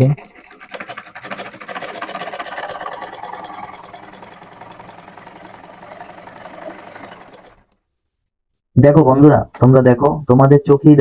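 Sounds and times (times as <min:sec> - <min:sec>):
sewing machine stitching: 0:00.0 - 0:07.8.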